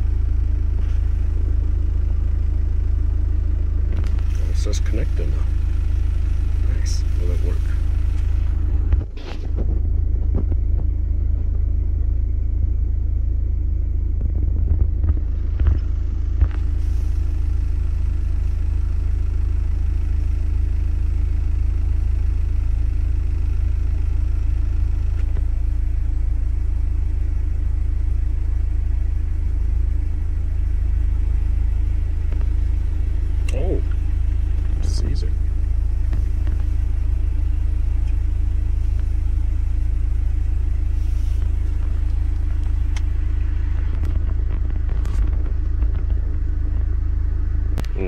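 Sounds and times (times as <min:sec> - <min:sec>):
car engine idling: 0:00.0 - 0:48.0.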